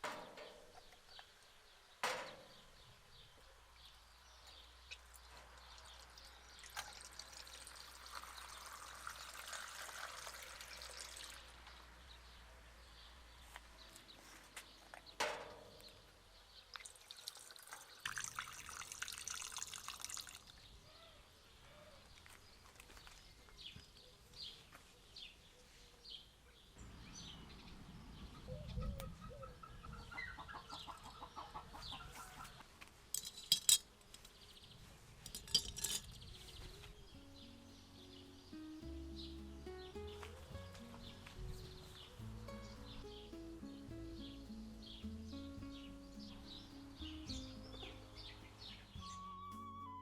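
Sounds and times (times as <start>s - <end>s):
liquid pouring and trickling: 4.9s - 11.6s, 16.7s - 20.7s.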